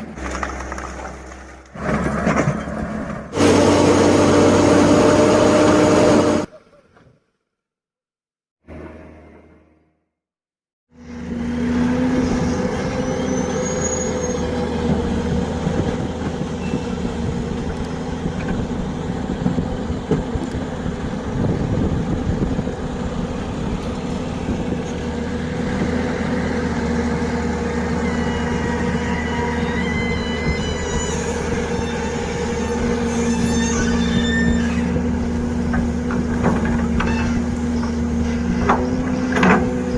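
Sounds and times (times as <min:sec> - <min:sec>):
excavator diesel engine running: 0:00.0 - 0:06.6, 0:11.0 - 0:39.9.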